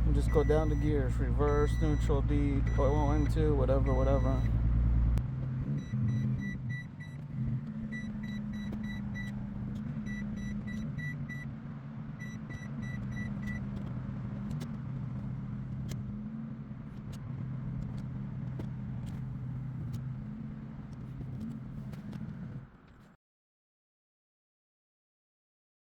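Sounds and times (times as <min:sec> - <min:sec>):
car warning chime beeping: 0:00.0 - 0:04.7, 0:05.7 - 0:11.5, 0:12.2 - 0:13.8
car engine idling: 0:00.0 - 0:23.0.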